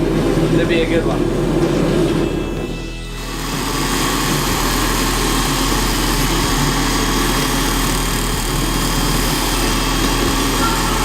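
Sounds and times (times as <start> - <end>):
electric knife sharpener grinding: 3.0 - 11.0.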